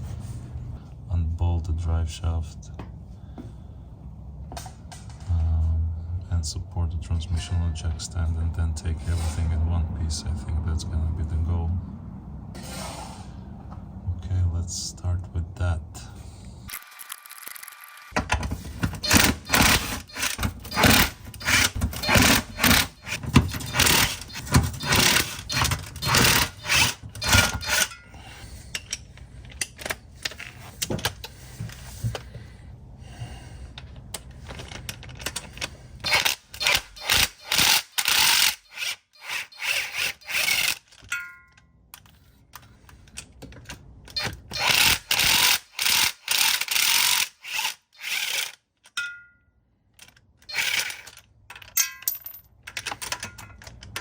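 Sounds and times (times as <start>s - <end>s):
ratchet wrench clicking: 19.0s - 28.0s, 36.0s - 40.9s, 44.1s - 48.6s, 50.5s - 51.2s.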